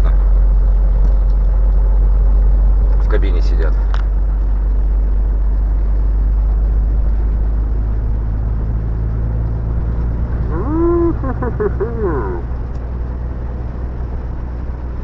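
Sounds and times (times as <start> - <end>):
truck engine and road drone: 0.0 - 15.0.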